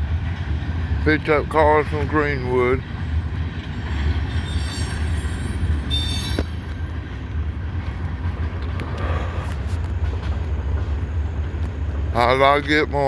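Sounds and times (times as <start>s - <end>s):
freight train rumbling past: 0.0s - 13.0s
wheels squealing: 3.0s - 11.4s.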